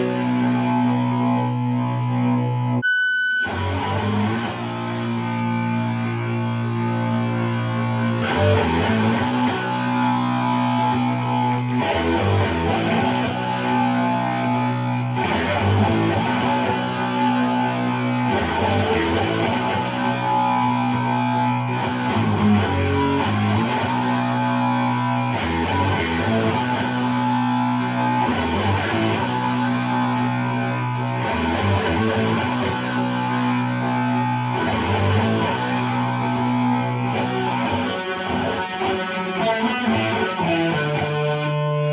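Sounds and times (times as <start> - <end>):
distorted electric guitar chords: 0.0 - 41.9.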